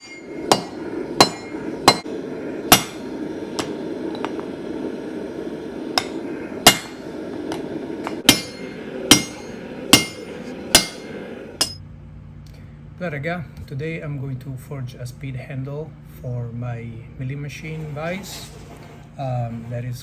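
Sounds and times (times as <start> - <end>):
hammer striking steel on anvil: 0.0 - 4.6, 5.9 - 11.8
low rushing background: 0.0 - 11.8.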